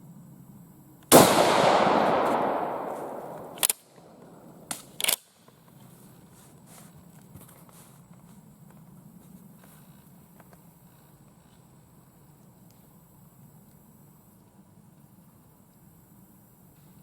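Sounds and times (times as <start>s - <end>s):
rifle shot: 1.1s - 4.9s
rifle bolt metallic clacks: 1.4s - 5.3s.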